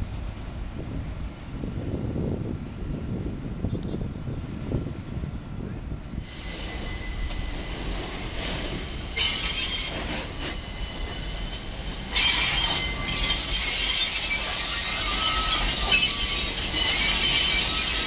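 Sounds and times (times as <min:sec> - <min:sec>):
subway train wheels squealing: 0:05.7 - 0:18.0.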